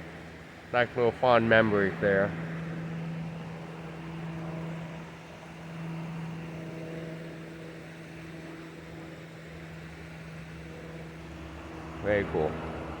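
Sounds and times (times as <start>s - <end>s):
faint rumbling background: 0.0s - 13.0s
low mechanical hum: 0.0s - 13.0s.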